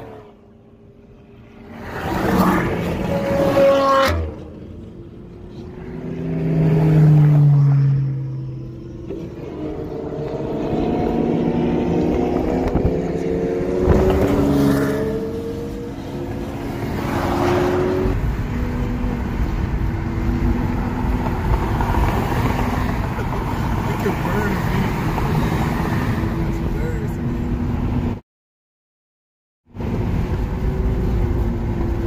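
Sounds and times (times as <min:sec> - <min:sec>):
sports car engines revving: 0:00.0 - 0:28.2.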